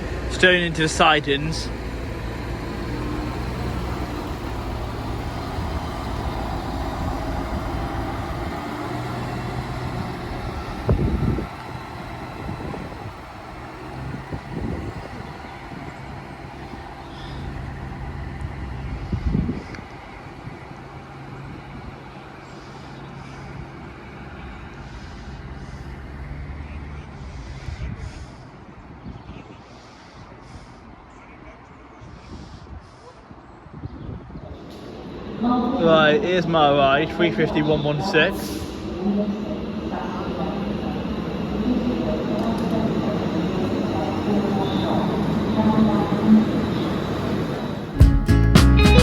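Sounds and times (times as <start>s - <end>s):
diesel engine humming: 0.0s - 31.4s, 34.4s - 49.0s.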